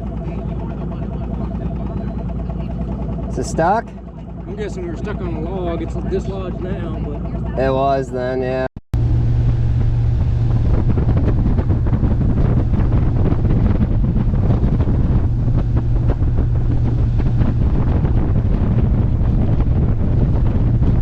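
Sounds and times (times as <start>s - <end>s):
wind buffeting microphone: 0.0s - 8.0s, 9.0s - 21.0s
outboard motor running: 0.0s - 21.0s.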